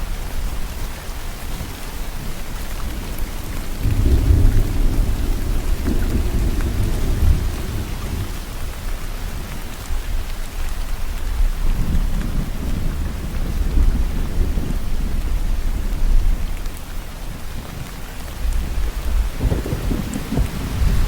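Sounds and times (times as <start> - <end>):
steady rain falling: 0.0 - 21.0
rolling thunder: 3.5 - 8.6, 18.4 - 21.0.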